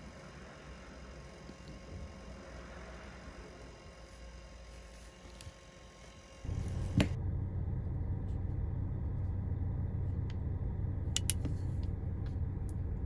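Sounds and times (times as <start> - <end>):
low rumble: 6.5 - 13.0.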